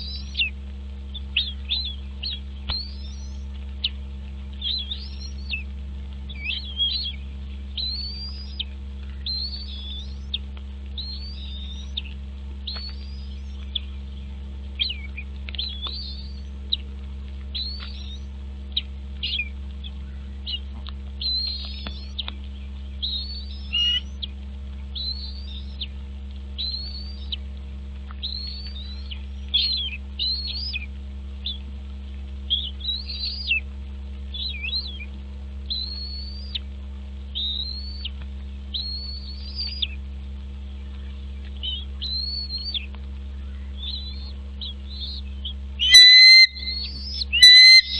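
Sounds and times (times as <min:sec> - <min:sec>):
bird chirping: 0:00.0 - 0:00.5, 0:01.1 - 0:05.6, 0:06.3 - 0:10.4, 0:11.0 - 0:12.1, 0:12.7 - 0:16.5, 0:17.6 - 0:18.3, 0:21.2 - 0:24.3, 0:24.9 - 0:25.9, 0:26.6 - 0:27.4, 0:28.2 - 0:31.6, 0:32.5 - 0:33.6, 0:34.3 - 0:35.1, 0:35.7 - 0:36.6, 0:37.3 - 0:40.0, 0:40.7 - 0:47.9
steady low hum: 0:00.0 - 0:47.9.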